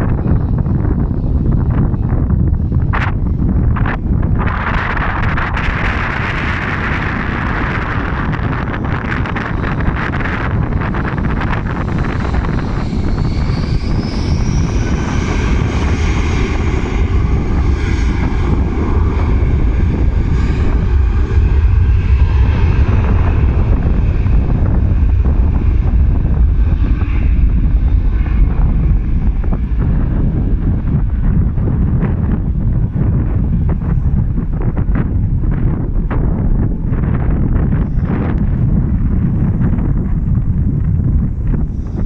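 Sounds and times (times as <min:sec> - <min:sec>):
jet engines passing: 0:00.0 - 0:42.0
wind buffeting microphone: 0:00.0 - 0:42.0.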